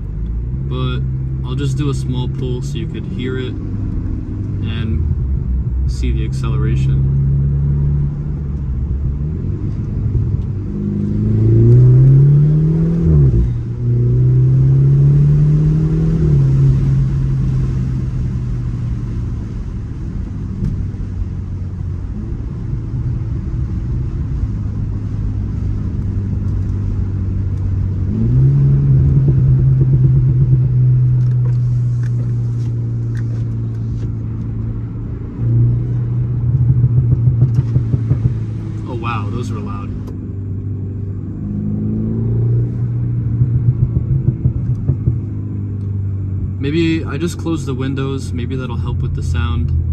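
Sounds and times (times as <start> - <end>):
car engine accelerating: 0.0 - 49.9
loud exhaust bangs: 35.4 - 40.2.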